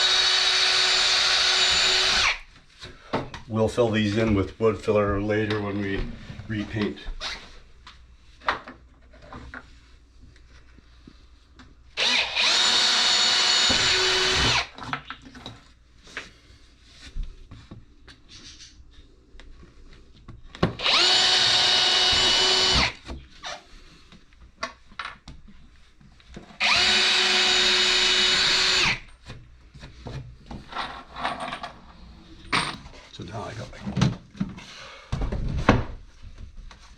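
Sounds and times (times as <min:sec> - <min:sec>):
power drill boring into wood: 0:00.0 - 0:02.4, 0:12.0 - 0:14.8, 0:20.8 - 0:23.6, 0:26.6 - 0:29.1.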